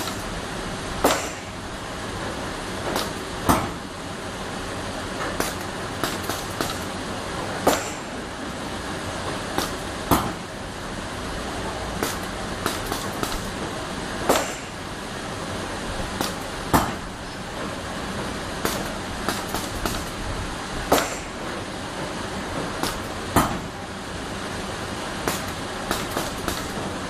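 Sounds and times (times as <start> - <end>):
sharp mechanical knocks: 0.0 - 0.4, 1.0 - 1.6, 2.8 - 3.9, 5.2 - 8.2, 9.6 - 10.5, 12.0 - 13.6, 14.2 - 14.8, 16.1 - 17.2, 18.2 - 20.2, 20.9 - 21.6, 22.6 - 23.8, 25.2 - 27.0
industrial machine humming: 0.0 - 27.0.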